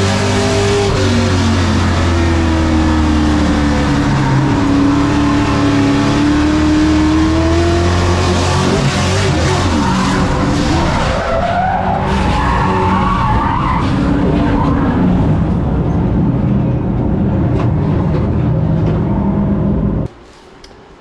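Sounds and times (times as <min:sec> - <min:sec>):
race truck engine revving: 0:00.0 - 0:16.3
tires skidding and squealing: 0:08.3 - 0:15.6.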